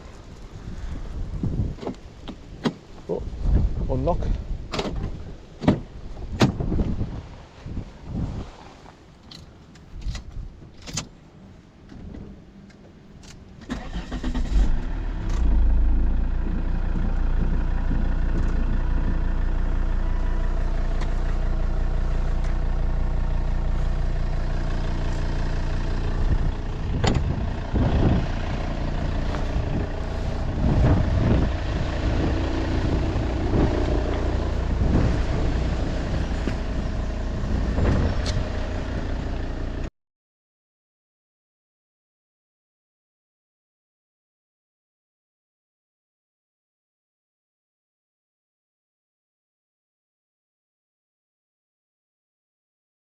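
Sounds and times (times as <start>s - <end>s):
knocks and clunks: 4.3s - 6.6s, 26.9s - 27.4s
car engine starting and idling: 9.3s - 39.9s
clicks before engine start: 13.2s - 15.5s.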